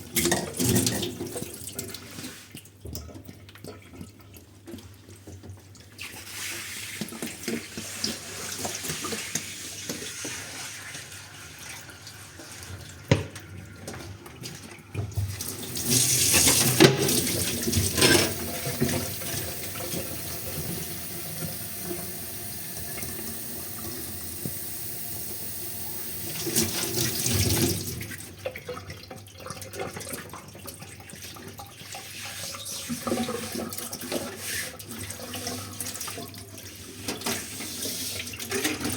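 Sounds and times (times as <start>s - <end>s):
tap running into sink: 15.0s - 28.0s.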